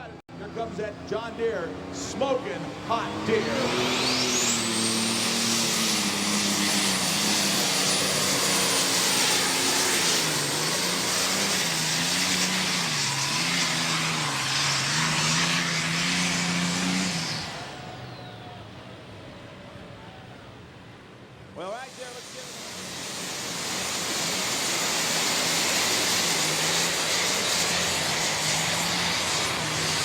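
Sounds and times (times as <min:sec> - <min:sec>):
high turbocharger whine: 0:00.0 - 0:30.0
tractor diesel engine under load: 0:00.0 - 0:30.0
outdoor hiss: 0:21.6 - 0:30.0.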